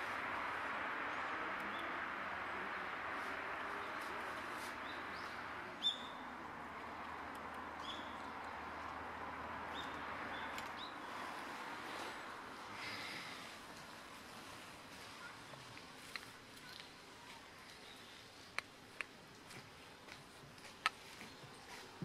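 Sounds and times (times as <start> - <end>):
small bird chirping: 4.8 - 6.2, 7.8 - 8.4.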